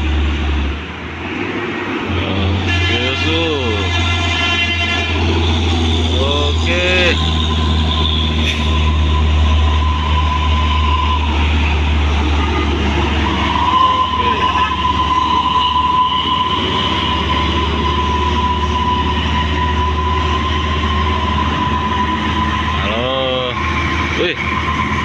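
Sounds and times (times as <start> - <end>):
heavy truck engine rumbling: 0.0 - 25.0
passing traffic: 0.0 - 25.0.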